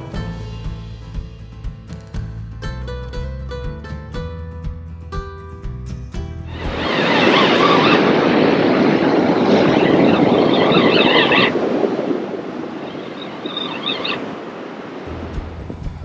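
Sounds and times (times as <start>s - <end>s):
wind: 0.0s - 16.0s
breaking surf: 6.5s - 16.0s.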